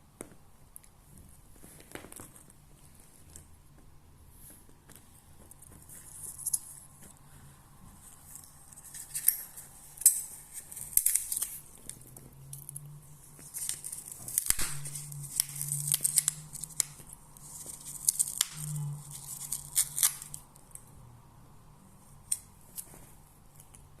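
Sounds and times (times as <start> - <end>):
cat tearing crinkly material: 8.2 - 21.0.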